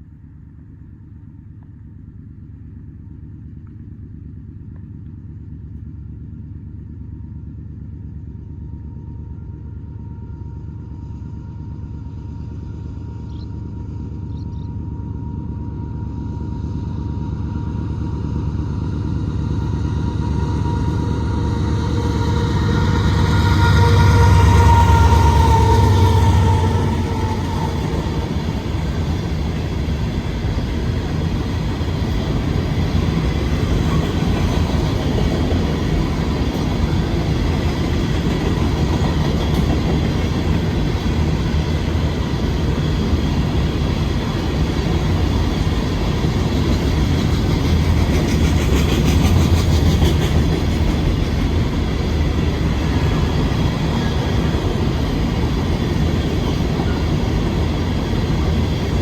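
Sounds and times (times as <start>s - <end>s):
steel wheels rolling on rails: 18.5s - 59.0s.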